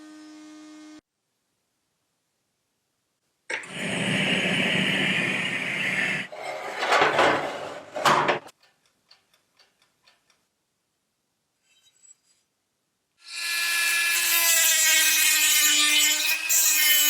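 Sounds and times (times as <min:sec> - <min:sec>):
workshop tool whirring: 0:03.5 - 0:08.5
faint regular ticks: 0:08.6 - 0:10.5.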